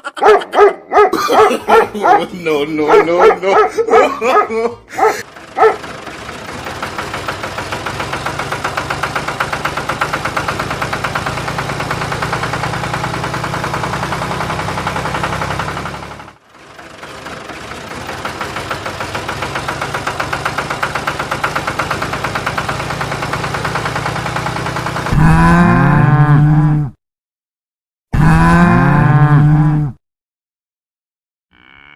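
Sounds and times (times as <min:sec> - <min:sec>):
engine putter: 0:01.2 - 0:25.9
cow mooing: 0:25.1 - 0:26.9, 0:28.2 - 0:30.0, 0:31.5 - 0:31.9.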